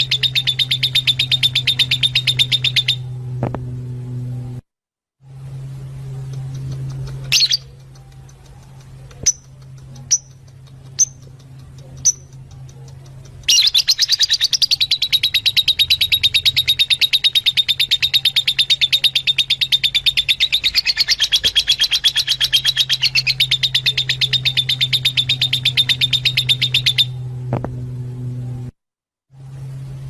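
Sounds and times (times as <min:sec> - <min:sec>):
low steady hum: 0:00.0 - 0:04.6, 0:05.2 - 0:30.0
lovebird shrill chirps: 0:13.5 - 0:27.2.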